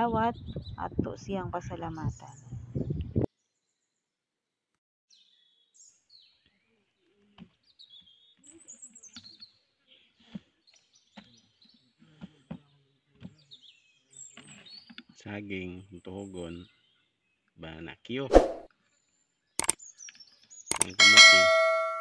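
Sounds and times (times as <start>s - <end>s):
faint birds chirping: 5.1s - 18.3s.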